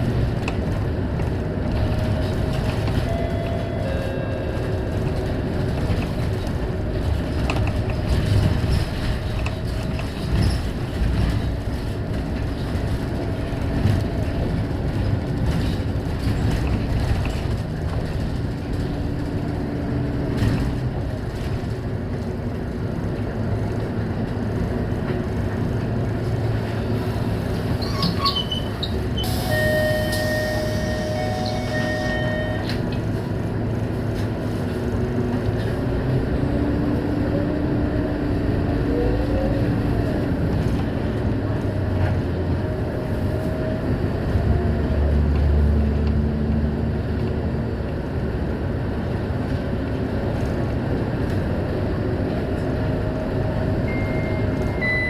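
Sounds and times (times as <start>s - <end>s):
diesel bus running: 0.0s - 55.0s.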